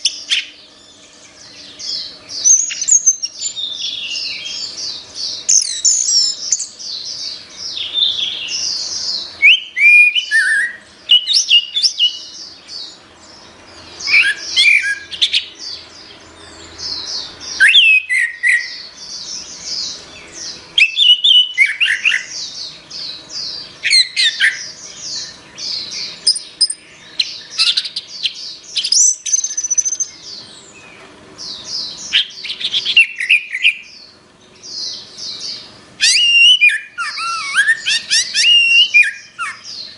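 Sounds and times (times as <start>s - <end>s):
thrush singing whistled phrases: 7.7s - 13.0s, 14.0s - 15.6s, 17.4s - 18.9s, 20.7s - 22.5s, 36.0s - 39.9s.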